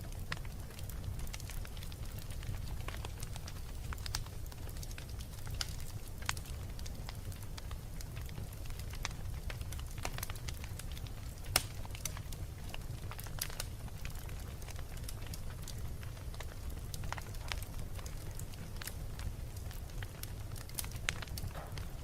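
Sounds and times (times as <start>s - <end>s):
low fire rumble: 0.0s - 22.0s
wood fire crackling and popping: 0.0s - 22.0s.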